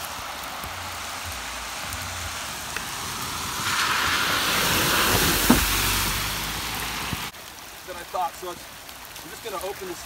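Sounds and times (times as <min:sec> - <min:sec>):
water hissing: 0:00.0 - 0:07.4.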